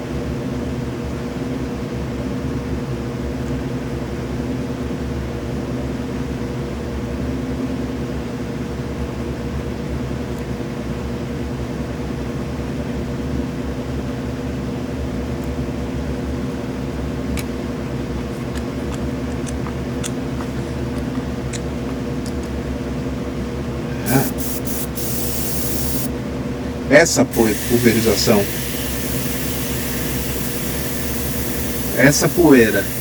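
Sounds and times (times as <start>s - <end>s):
compressor motor humming: 23.9s - 33.0s.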